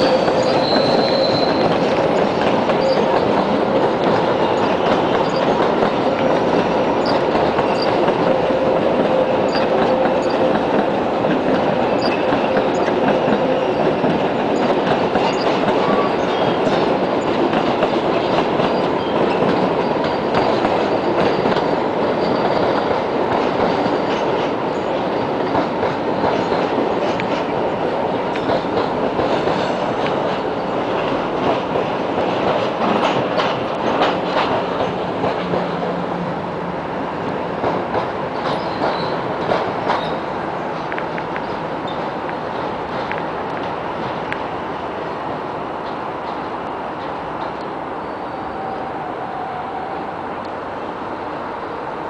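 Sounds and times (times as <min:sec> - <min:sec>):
high wheel squeals: 0:00.0 - 0:01.8, 0:02.8 - 0:03.4, 0:04.4 - 0:05.6, 0:06.9 - 0:10.5
clickety-clack over rail joints: 0:00.0 - 0:47.8
train wheels rumbling on rails: 0:00.0 - 0:52.0.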